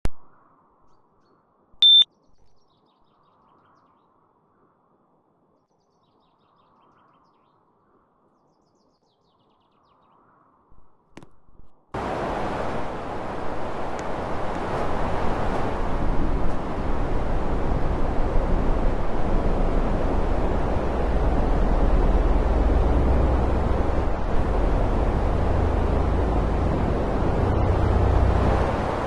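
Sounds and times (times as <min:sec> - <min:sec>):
air conditioner short high beep: 0:01.8 - 0:02.1
air conditioner fan rushing air: 0:12.0 - 0:29.0.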